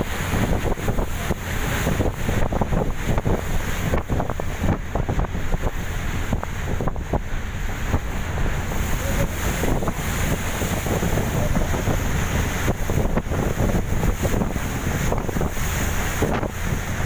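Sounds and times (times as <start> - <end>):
boat engine rumble: 0.0 - 17.0
wind buffeting microphone: 0.0 - 17.0.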